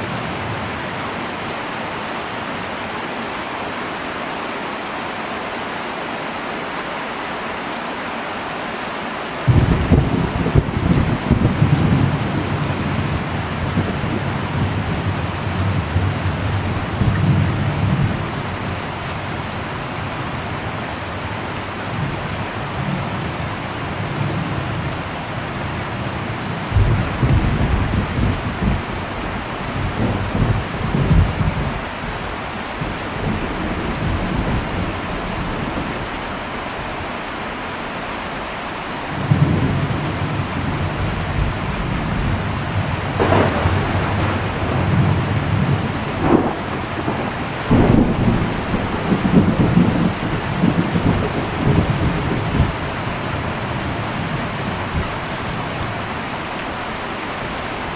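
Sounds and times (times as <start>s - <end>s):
heavy rain on a metal roof: 0.0s - 57.9s
thunder rumbling: 9.5s - 36.6s, 39.2s - 56.4s.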